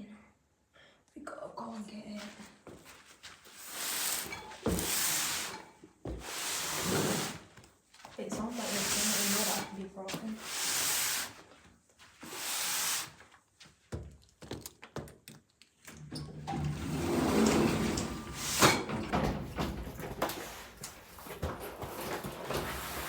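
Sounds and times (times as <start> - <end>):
rustling and shuffling of objects: 1.6 - 12.4, 16.5 - 23.0.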